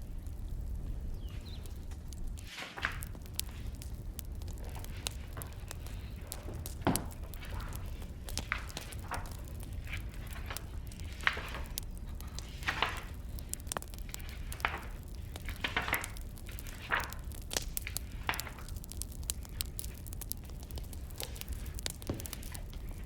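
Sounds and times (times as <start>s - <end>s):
firewood crackling and popping: 0.0s - 23.0s
soft rustling: 0.3s - 23.0s.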